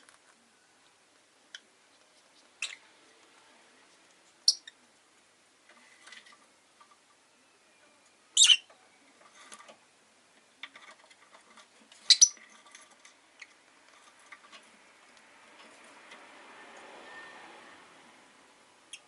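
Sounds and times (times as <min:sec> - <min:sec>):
lovebird high chirps: 0:02.6 - 0:02.9, 0:04.4 - 0:04.8, 0:08.3 - 0:08.7, 0:12.0 - 0:12.4.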